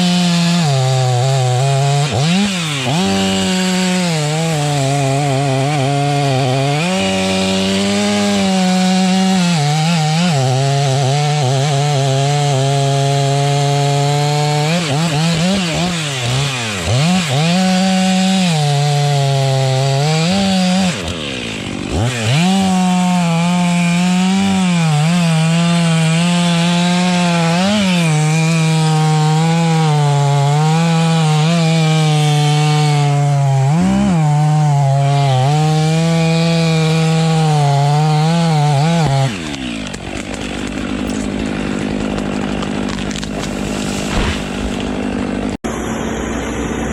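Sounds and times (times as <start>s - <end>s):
chainsaw cutting into a tree: 0.0s - 46.9s.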